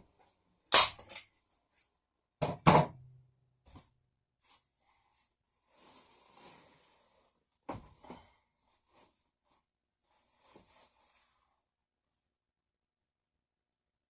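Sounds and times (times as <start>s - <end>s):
soft rustling: 4.4s - 11.6s.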